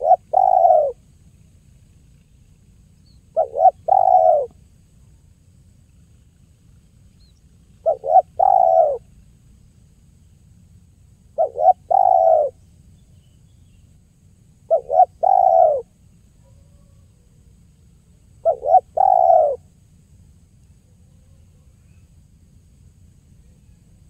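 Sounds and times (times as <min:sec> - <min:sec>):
dove cooing: 0:00.0 - 0:01.0, 0:03.3 - 0:04.6, 0:07.7 - 0:09.1, 0:11.4 - 0:12.6, 0:14.7 - 0:17.5, 0:18.4 - 0:19.7.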